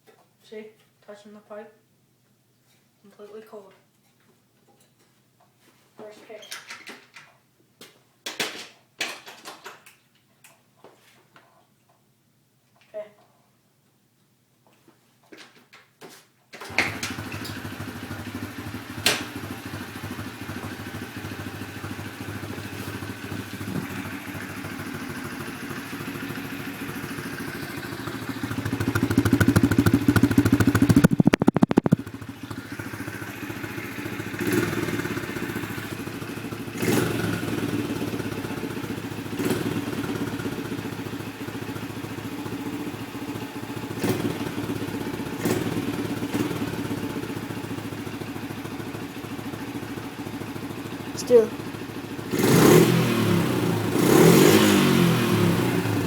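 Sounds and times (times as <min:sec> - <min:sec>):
small motorbike engine revving: 0:16.7 - 0:56.0.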